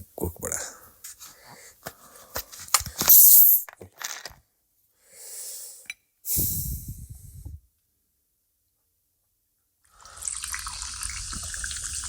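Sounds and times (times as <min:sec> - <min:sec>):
drink can opening with hiss: 0:01.9 - 0:03.9, 0:06.3 - 0:06.8.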